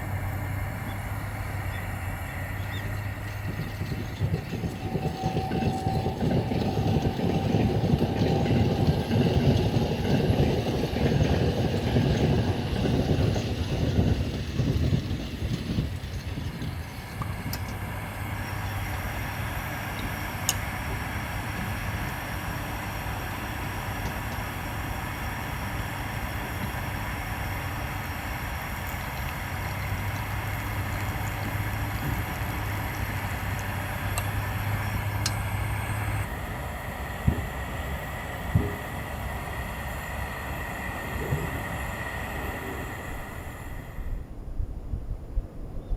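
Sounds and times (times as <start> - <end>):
train passing: 0.0 - 45.7
steady low hum: 0.0 - 45.9.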